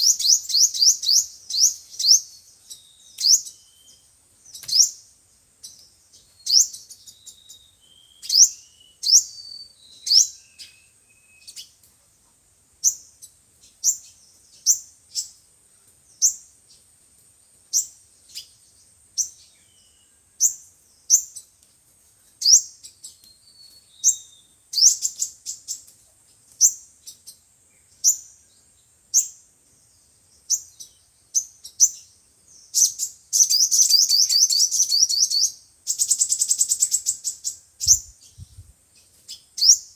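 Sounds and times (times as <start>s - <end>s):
bird calling with high chips: 0.0s - 11.8s, 22.4s - 25.9s, 30.5s - 39.9s.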